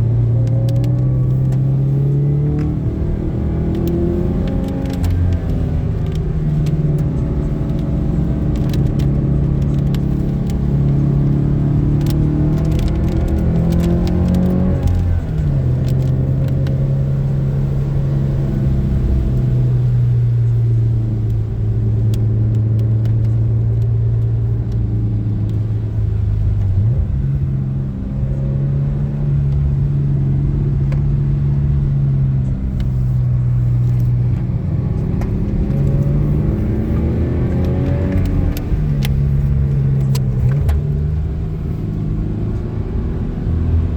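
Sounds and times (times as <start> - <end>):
car engine droning inside cabin: 0.0 - 43.9
road noise: 0.0 - 43.9.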